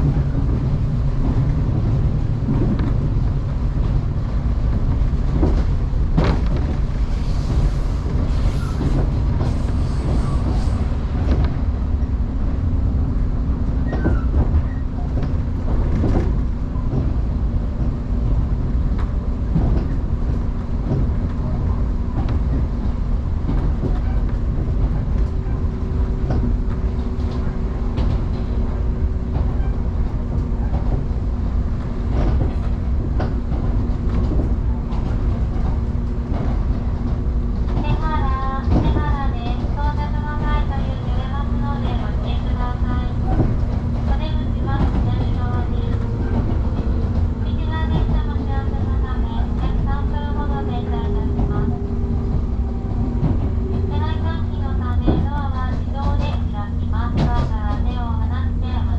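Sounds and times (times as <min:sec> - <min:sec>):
train rumble and hum: 0:00.0 - 0:58.9
wheels clicking over rail joints: 0:13.7 - 0:58.2.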